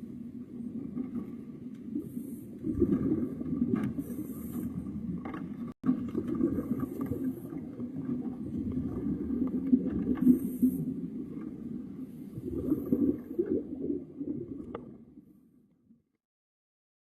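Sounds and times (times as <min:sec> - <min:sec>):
underwater bubbles gurgling: 0:00.0 - 0:15.4
breath hissing through regulator: 0:04.0 - 0:04.9.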